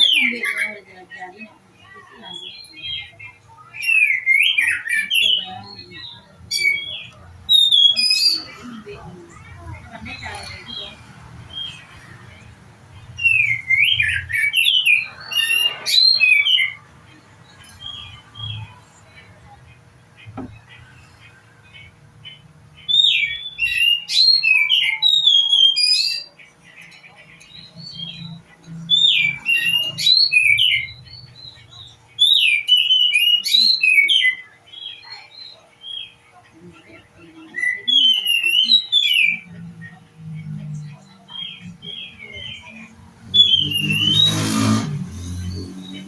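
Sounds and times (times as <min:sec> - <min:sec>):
songbird singing: 0:00.0 - 0:46.0.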